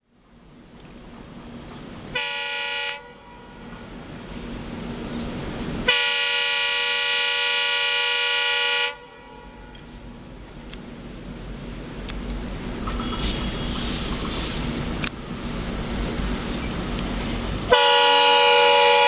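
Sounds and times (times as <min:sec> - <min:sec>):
train rumbling: 0:00.2 - 0:19.0
locomotive horn blasts: 0:02.2 - 0:03.4, 0:05.9 - 0:09.7, 0:17.6 - 0:19.0.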